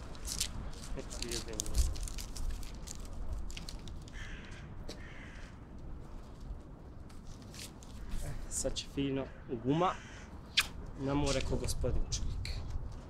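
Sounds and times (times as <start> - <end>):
low outdoor rumble: 0.0 - 13.0
harsh bird calls: 9.1 - 10.8.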